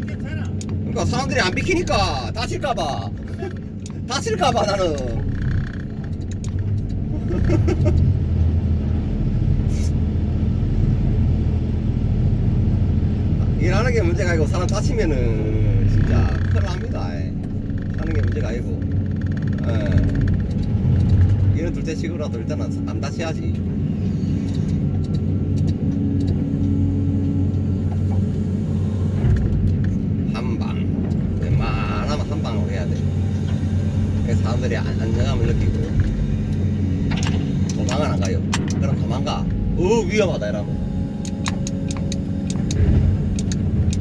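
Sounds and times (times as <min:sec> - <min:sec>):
excavator vibro hammer rumble: 0:12.8 - 0:44.0.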